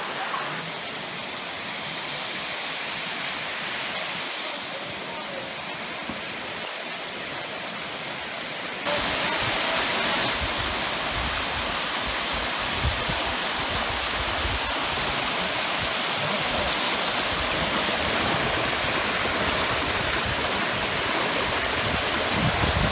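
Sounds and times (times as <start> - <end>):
flowing water rushing: 0.0 - 22.9.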